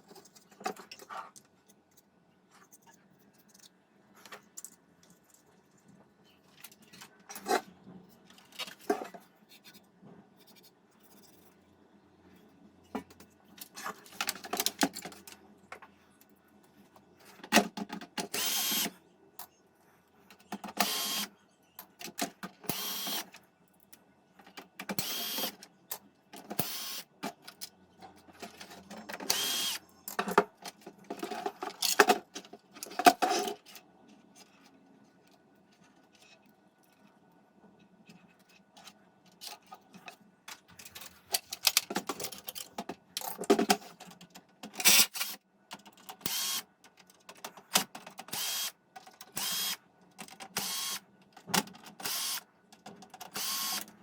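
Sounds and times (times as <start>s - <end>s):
clicks and knocks of handling parts: 0.0s - 11.6s, 12.8s - 19.6s, 21.7s - 54.0s
small power tool running: 18.4s - 18.9s, 29.3s - 29.8s, 48.4s - 48.7s, 49.4s - 49.7s, 53.4s - 53.8s.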